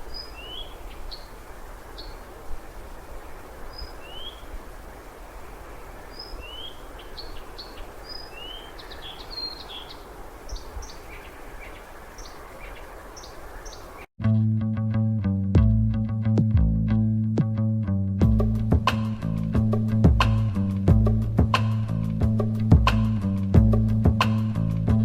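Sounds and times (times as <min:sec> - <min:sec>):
bird chirping: 0:00.0 - 0:04.6, 0:05.3 - 0:14.1
background hiss: 0:00.0 - 0:14.1
guitar music: 0:14.2 - 0:24.0.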